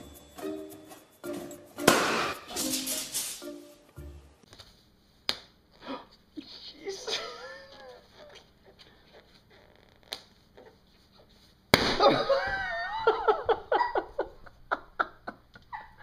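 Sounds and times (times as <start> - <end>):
person laughing: 6.8 - 8.6, 12.0 - 16.0.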